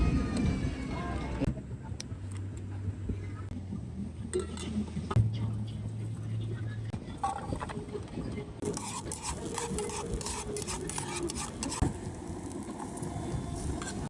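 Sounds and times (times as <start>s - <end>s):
utensil scraping a pan: 8.6s - 11.9s.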